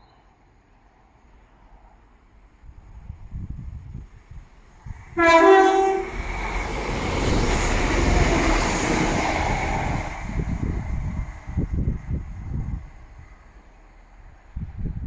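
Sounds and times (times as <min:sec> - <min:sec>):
train rushing past: 0:01.6 - 0:15.0
two-note train horn: 0:05.2 - 0:06.2.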